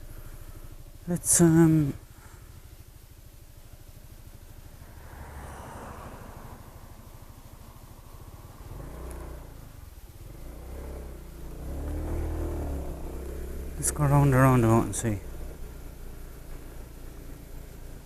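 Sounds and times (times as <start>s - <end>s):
scooter engine running: 0.0s - 18.0s.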